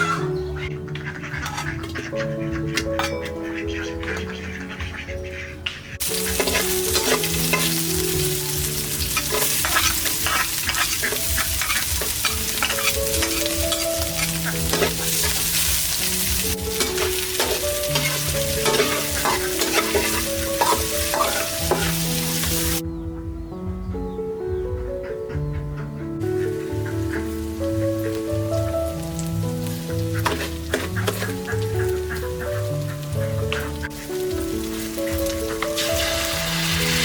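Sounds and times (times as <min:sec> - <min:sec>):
background music: 0:00.0 - 0:37.0
food sizzling in a pan: 0:06.0 - 0:22.8, 0:26.4 - 0:37.0
stirring clicks and scrapes: 0:30.2 - 0:31.5.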